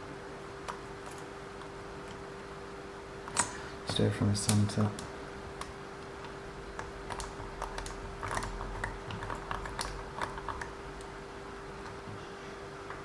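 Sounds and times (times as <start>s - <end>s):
faint hum: 0.0s - 13.0s
small parts clicking and tapping: 3.3s - 11.1s.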